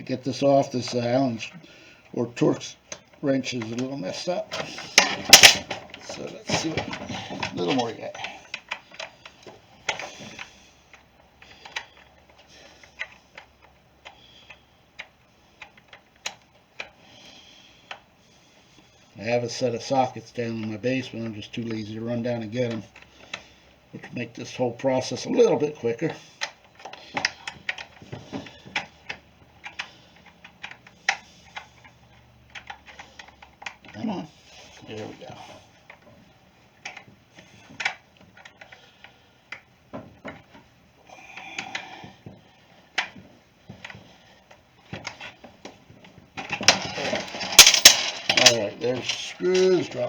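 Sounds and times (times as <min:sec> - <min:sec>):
hand wrench clicking on screws: 0:07.5 - 0:18.2, 0:19.9 - 0:34.0, 0:36.8 - 0:45.8, 0:46.4 - 0:50.0
metal tapping on screw heads: 0:39.5 - 0:50.0.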